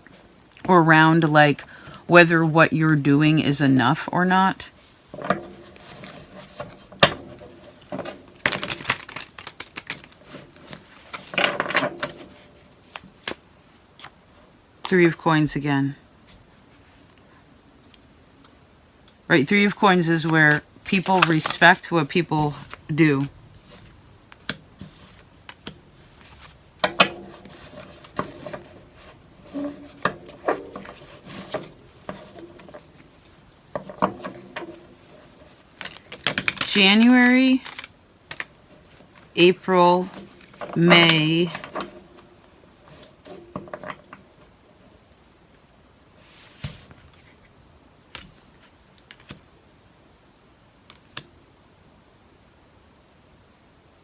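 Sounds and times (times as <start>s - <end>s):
cards being handled: 5.2s - 13.4s, 20.1s - 44.5s, 48.2s - 49.4s.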